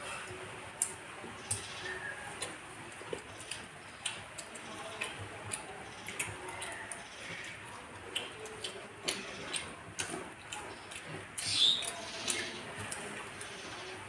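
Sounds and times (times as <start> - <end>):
chewing and mouth smacks: 2.3 - 13.6.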